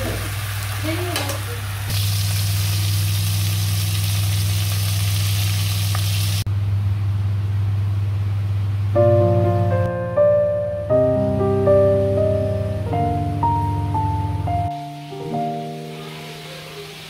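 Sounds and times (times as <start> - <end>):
oil sizzling in a wok: 0.0 - 6.5, 14.7 - 17.0.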